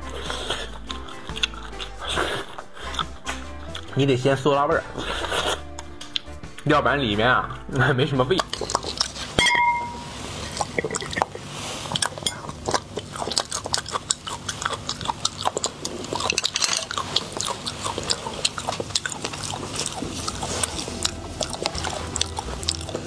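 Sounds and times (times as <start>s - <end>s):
wet chewing and lip smacks: 0.0s - 3.9s, 8.3s - 9.4s, 10.2s - 23.0s.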